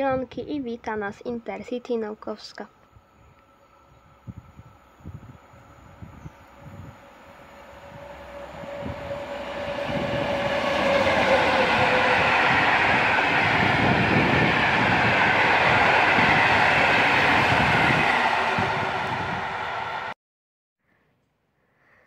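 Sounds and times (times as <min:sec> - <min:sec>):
passenger train passing at speed: 0:02.7 - 0:20.2
faint tone dropping in pitch: 0:05.8 - 0:16.3.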